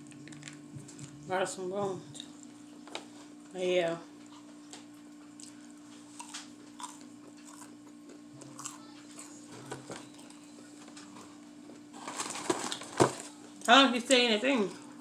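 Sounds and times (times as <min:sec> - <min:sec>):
chewing crunchy food: 0:04.2 - 0:11.8.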